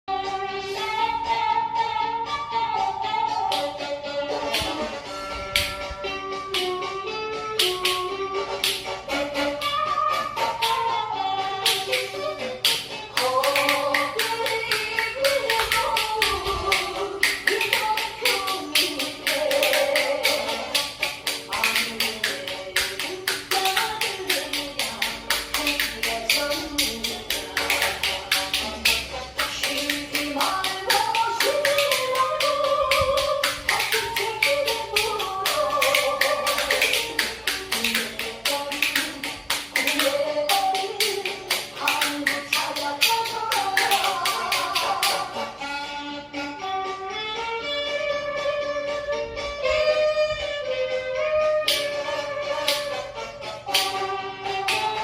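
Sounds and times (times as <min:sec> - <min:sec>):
spoons clacking: 0:11.7 - 0:45.2.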